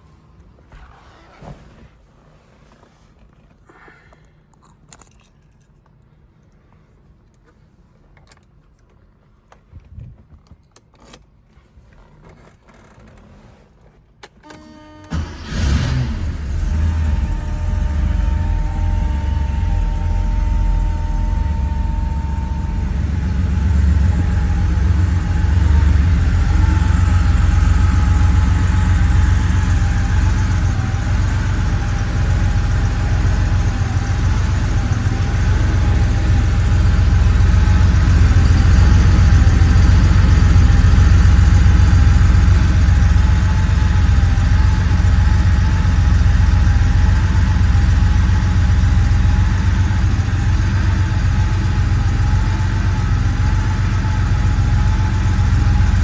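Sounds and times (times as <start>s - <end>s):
faint engine whine: 14.2s - 56.0s
car engine idling: 15.1s - 56.0s.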